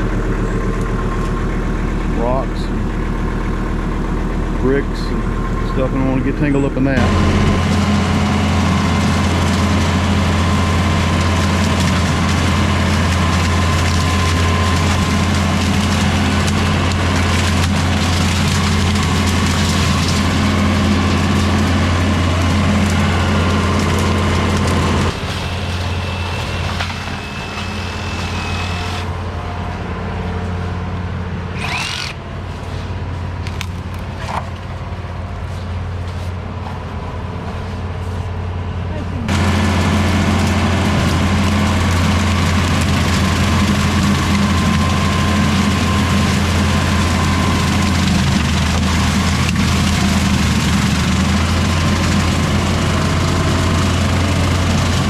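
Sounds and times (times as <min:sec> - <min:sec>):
tractor diesel engine running: 0:00.0 - 0:55.0
rotary cutter crackling through bamboo: 0:09.0 - 0:29.2, 0:31.5 - 0:32.8.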